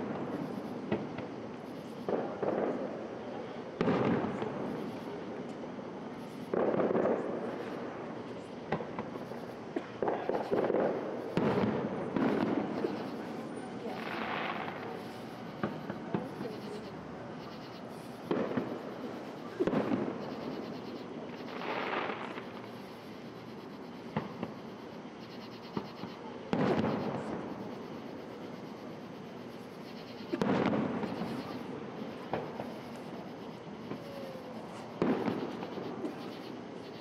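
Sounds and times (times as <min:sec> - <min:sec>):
small firework pops: 0:00.0 - 0:03.1, 0:03.8 - 0:05.6, 0:06.2 - 0:16.8, 0:17.6 - 0:23.3, 0:24.0 - 0:24.7, 0:25.5 - 0:27.6, 0:30.2 - 0:36.6
firework shells bursting: 0:08.7 - 0:16.8, 0:17.4 - 0:24.8, 0:29.6 - 0:36.6.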